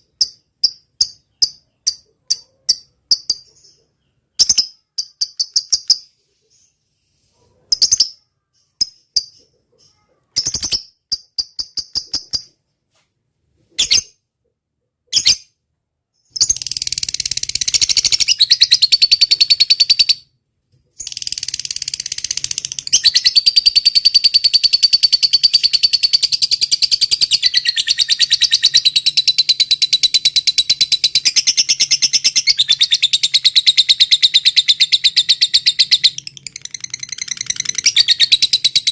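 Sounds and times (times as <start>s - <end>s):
bird chirping: 0.0s - 12.7s, 13.6s - 38.9s.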